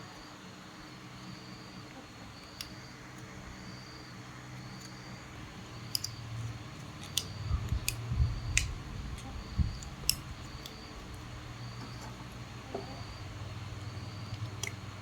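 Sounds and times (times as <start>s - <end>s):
low steady hum: 0.0s - 15.0s
sharp clicks of hand tools: 5.8s - 6.2s, 6.8s - 11.2s.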